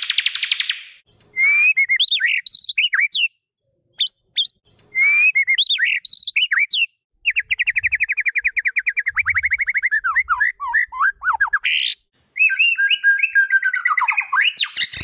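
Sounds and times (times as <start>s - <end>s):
bird whistling and trilling: 0.0s - 3.4s, 4.0s - 15.0s.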